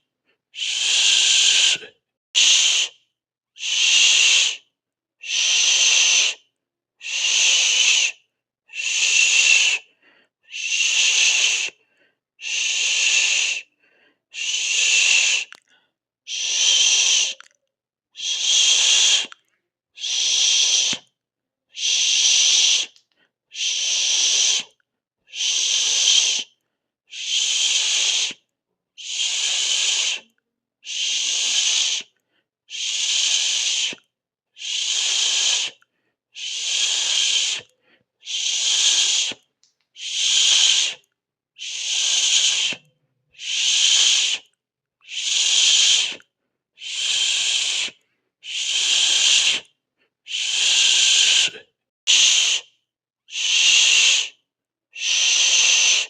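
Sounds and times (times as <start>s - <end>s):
pulsed shh hiss: 36.4s - 37.7s, 46.8s - 49.6s, 50.3s - 52.6s.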